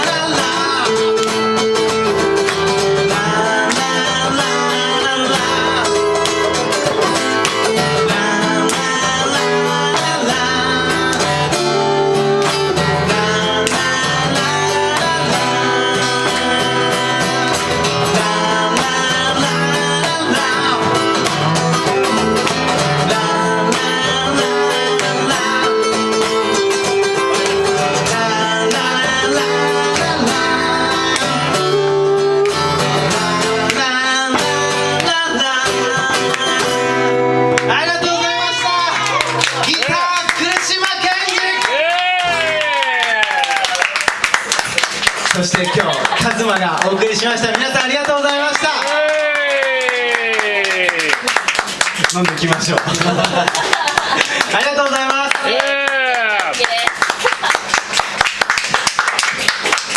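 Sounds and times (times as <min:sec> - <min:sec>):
person singing: 0:00.0 - 0:43.8
acoustic guitar music: 0:00.0 - 0:59.9.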